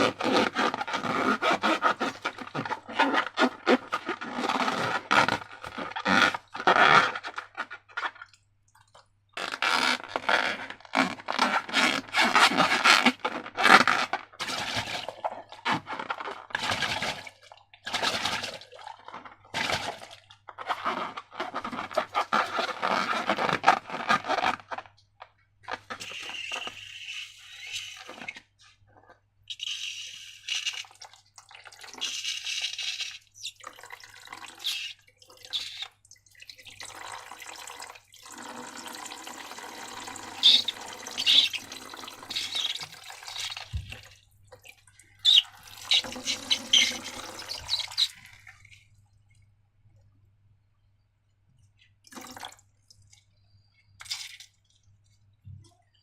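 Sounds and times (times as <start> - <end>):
slime squelching: 40.1 - 44.2, 44.8 - 49.0.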